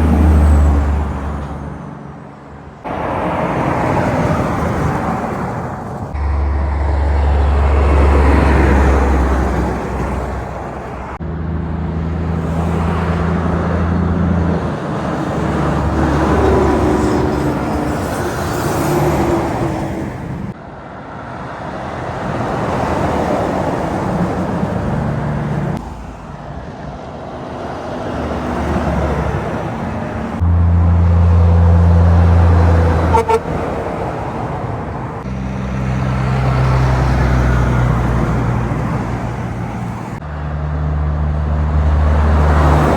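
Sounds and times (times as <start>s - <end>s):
trucks and cars passing: 0.0s - 42.9s
short horn toot: 33.0s - 33.6s.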